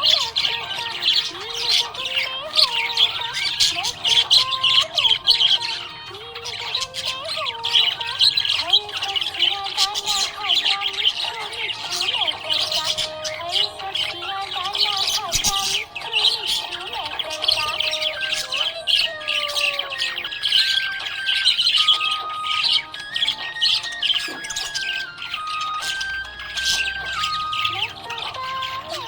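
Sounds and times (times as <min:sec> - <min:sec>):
budgerigars chirping: 0:00.0 - 0:29.0
music playing: 0:00.0 - 0:29.0.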